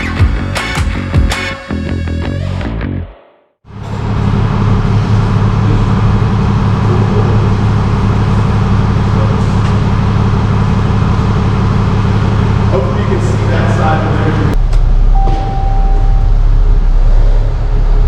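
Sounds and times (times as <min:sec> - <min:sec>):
truck engine idling: 0:03.7 - 0:18.0.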